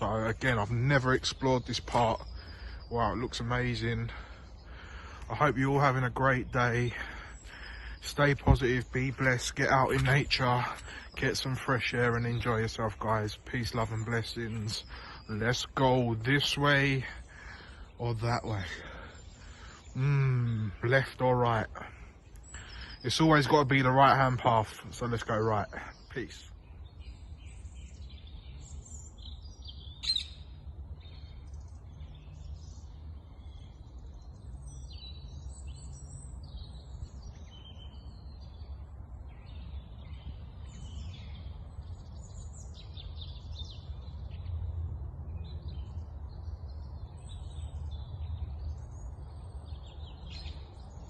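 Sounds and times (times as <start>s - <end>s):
steady low rumble: 0.0s - 23.2s, 24.3s - 51.0s
birds chirping and singing: 0.0s - 51.0s
sharp bird call: 29.3s - 30.6s.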